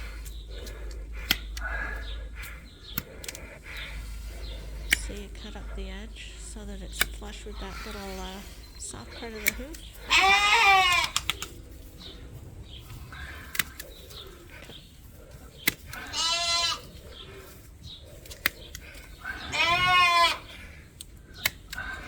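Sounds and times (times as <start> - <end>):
hoof shears snipping: 0.0 - 22.0
sheep bleating: 7.3 - 11.3, 15.9 - 17.0, 19.2 - 20.8.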